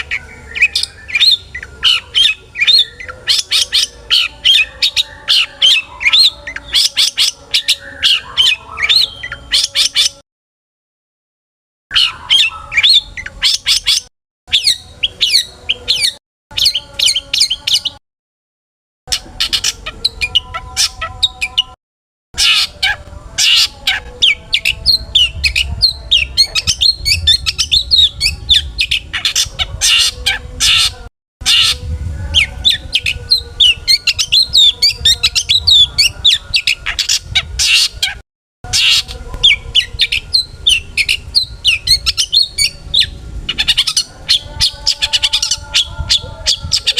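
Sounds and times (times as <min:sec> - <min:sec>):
bird singing scratchy chirps: 0:00.0 - 0:10.2, 0:11.9 - 0:18.0, 0:19.1 - 0:21.8, 0:22.4 - 0:46.9.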